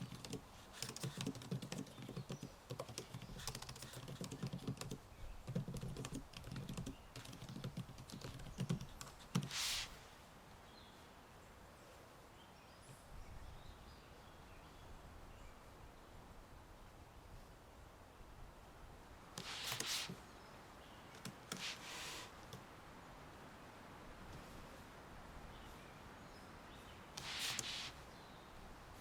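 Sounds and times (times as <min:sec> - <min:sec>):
keyboard typing: 0:00.0 - 0:09.5
short swish: 0:09.5 - 0:10.0, 0:19.4 - 0:20.2, 0:21.6 - 0:22.3, 0:27.2 - 0:28.0.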